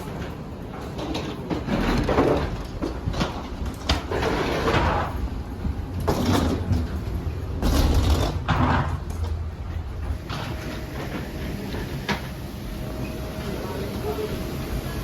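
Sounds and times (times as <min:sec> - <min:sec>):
low cabin hum: 0:02.6 - 0:14.5.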